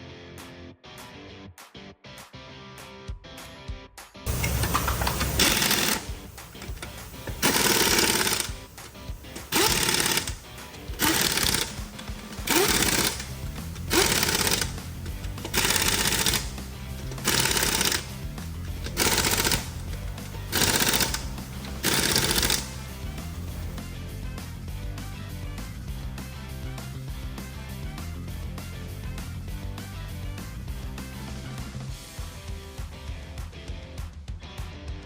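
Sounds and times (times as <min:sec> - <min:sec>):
background music: 0:04.2 - 0:35.0
machine rattling in short bursts: 0:04.3 - 0:23.8.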